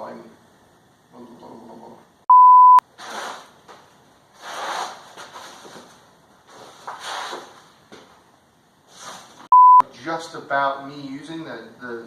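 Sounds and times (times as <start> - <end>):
censor bleep: 2.3 - 2.8, 9.5 - 9.9.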